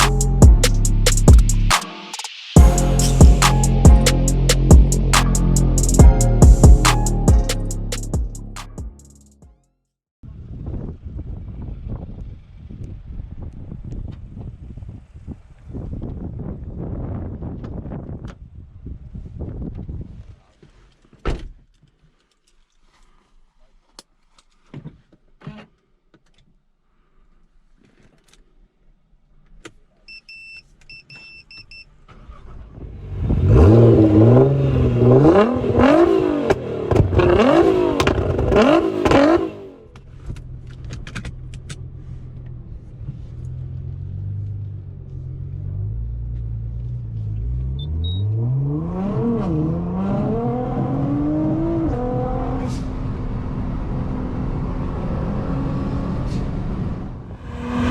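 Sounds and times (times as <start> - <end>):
car engine revving: 0.0 - 1.8, 33.0 - 39.9, 57.2 - 57.9.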